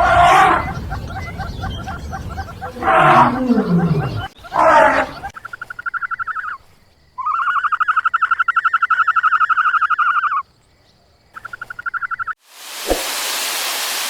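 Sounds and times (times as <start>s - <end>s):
animal rapid trilling call: 7.2s - 10.4s.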